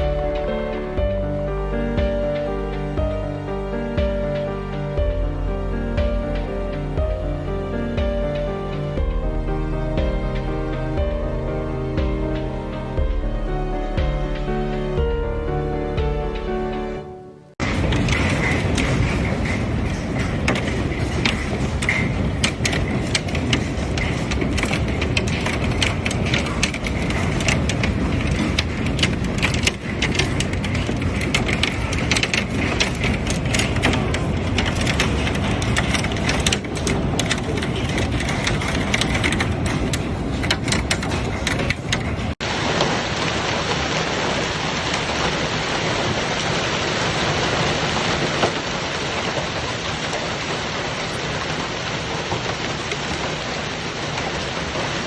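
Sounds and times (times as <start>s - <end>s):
heavy rain: 0.0s - 55.0s
hailstones pelting: 17.6s - 41.7s, 42.4s - 55.0s.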